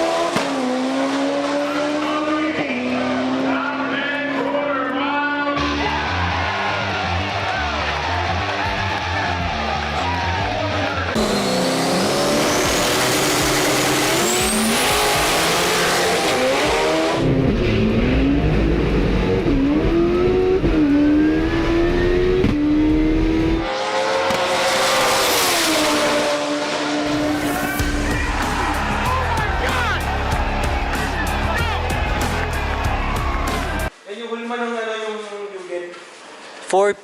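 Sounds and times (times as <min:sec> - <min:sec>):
race car engines at high revs: 0:00.0 - 0:05.8, 0:10.8 - 0:27.9.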